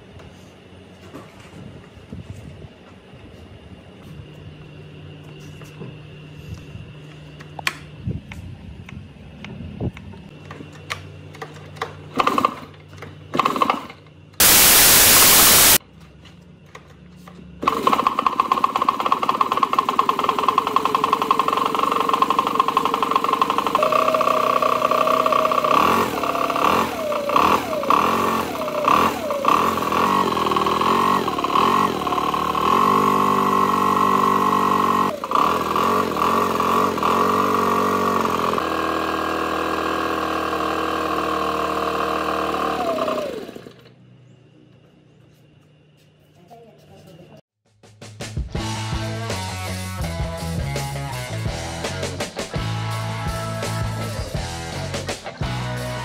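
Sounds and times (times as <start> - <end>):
blower engine starting and running: 0.0 - 15.8, 16.7 - 44.4, 48.6 - 56.0
loud burst of noise: 14.4 - 15.8.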